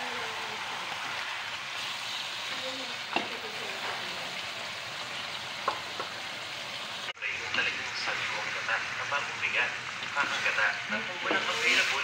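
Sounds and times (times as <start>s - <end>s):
chicken sizzling in a wok: 0.0s - 12.0s.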